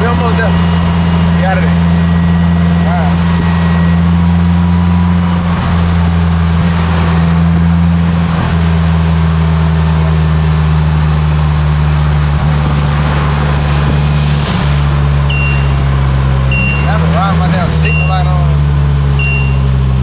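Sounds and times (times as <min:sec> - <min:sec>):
car engine running steadily: 0:00.0 - 0:20.0
wind and rain rushing: 0:12.2 - 0:16.6.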